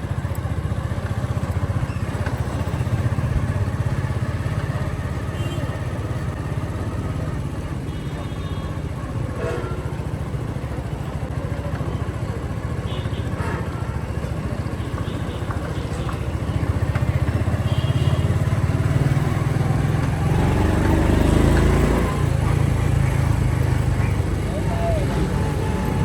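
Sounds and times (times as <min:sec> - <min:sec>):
motorcycle engine throbbing: 0:14.9 - 0:26.0.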